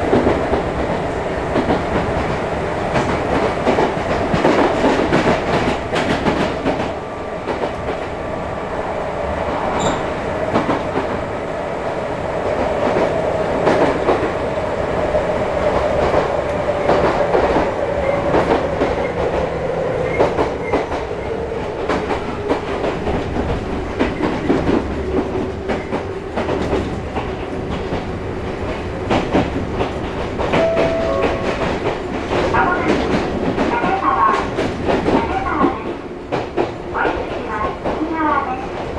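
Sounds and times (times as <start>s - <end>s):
train wheels rumbling on track: 0.0s - 38.9s
rail-joint clicks: 9.7s - 10.8s.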